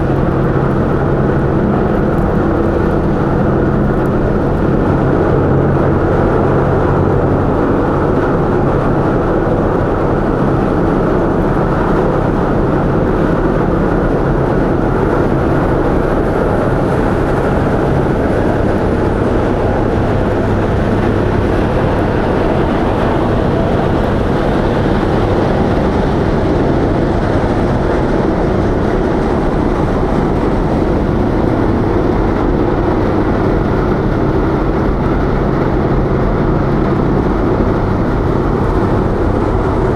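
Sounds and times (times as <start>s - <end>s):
diesel engines droning: 0.0s - 39.9s
rushing water noise: 12.7s - 39.9s.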